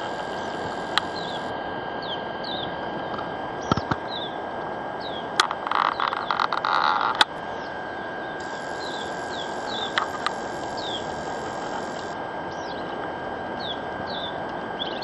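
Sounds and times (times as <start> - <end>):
rapid rattling clicks: 0.0 - 1.5, 8.4 - 12.2
sharp clicks: 0.0 - 1.5, 8.4 - 12.2
outdoor background hiss: 0.0 - 1.9, 4.4 - 12.7
bird chirping: 1.1 - 2.7, 8.4 - 12.9.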